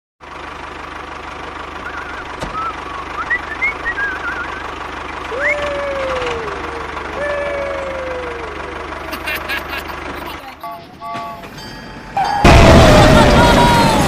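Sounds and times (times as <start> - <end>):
low mechanical hum: 0.3 - 14.0
short wavy whistled chirps: 1.8 - 4.7
rising and falling call: 1.8 - 8.9.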